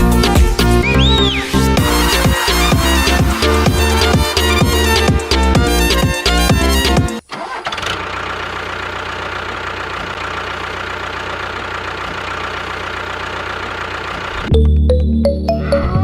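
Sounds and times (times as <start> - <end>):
music: 0.0 - 7.2, 14.5 - 16.0
engine idling: 0.0 - 14.5.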